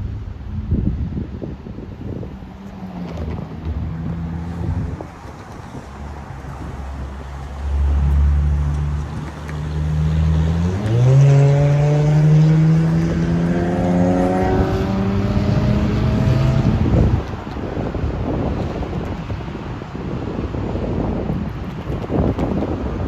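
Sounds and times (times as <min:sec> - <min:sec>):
large engine revving: 0:01.7 - 0:17.4.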